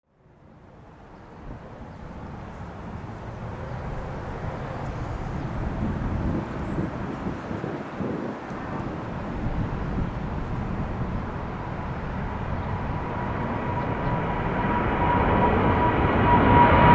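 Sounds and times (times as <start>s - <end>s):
jet engines roaring: 1.0s - 16.9s.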